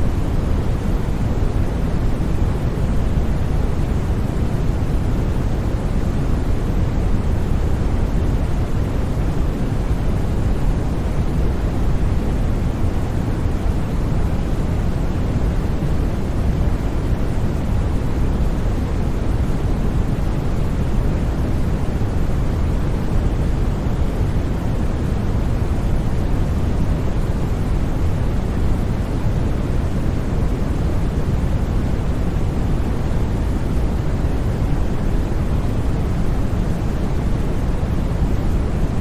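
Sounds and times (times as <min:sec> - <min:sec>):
deep even white noise: 0:00.0 - 0:39.0.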